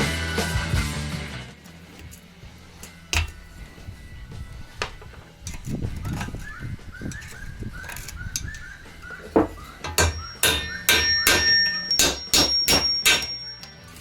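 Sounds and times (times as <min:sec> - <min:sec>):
hammer striking metal: 0:03.1 - 0:03.5, 0:09.4 - 0:13.8.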